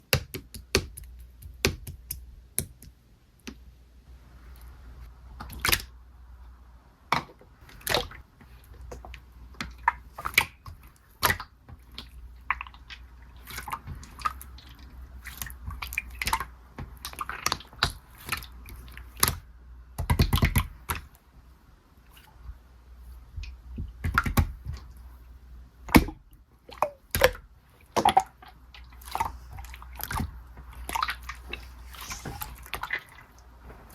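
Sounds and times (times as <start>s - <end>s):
low steady hum: 0.0s - 33.9s.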